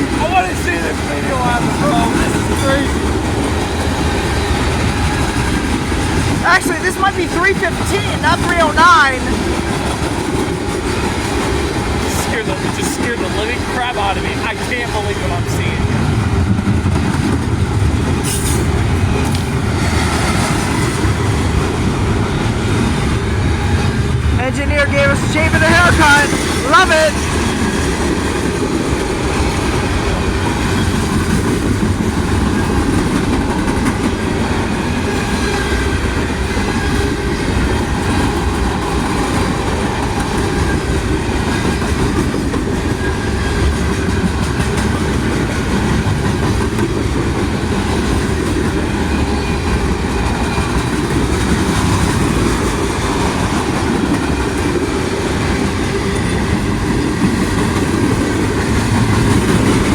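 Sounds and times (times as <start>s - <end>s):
freight train rumbling past: 0.0s - 59.9s
wheels clacking over rail joints: 27.2s - 59.9s.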